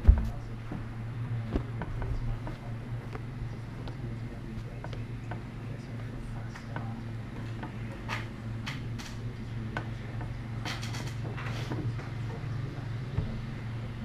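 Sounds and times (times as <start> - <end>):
small thump: 0.0 - 0.5
steady low hum: 0.0 - 14.0.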